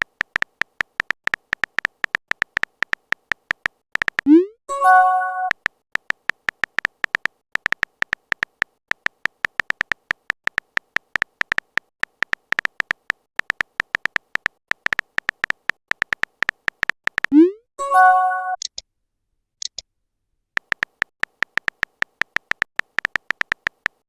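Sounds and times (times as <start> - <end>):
phone keyboard typing clicks: 0.0 - 4.4, 5.3 - 17.5, 20.6 - 24.0
message notification chime: 4.3 - 5.5, 17.3 - 18.6.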